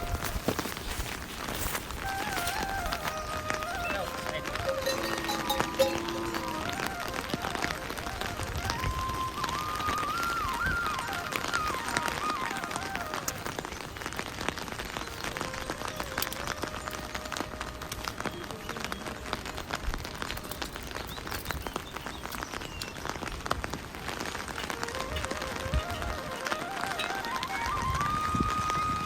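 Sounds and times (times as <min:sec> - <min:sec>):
rain falling: 0:00.0 - 0:29.0
raindrops hitting close by: 0:00.0 - 0:29.0.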